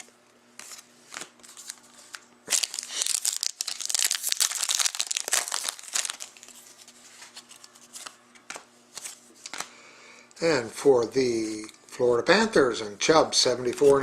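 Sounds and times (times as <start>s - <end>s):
wrapper crinkling: 1.1s - 8.2s.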